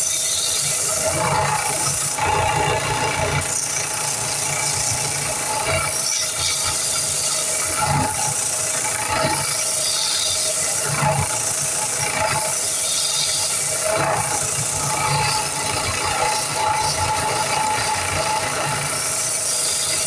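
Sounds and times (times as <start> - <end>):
belt grinder running: 0.0 - 20.0.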